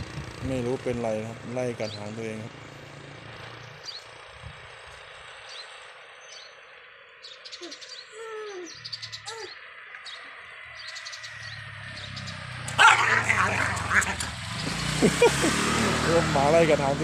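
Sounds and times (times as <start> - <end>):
birds chirping: 0.0 - 17.0
sliding bird calls: 7.4 - 14.9.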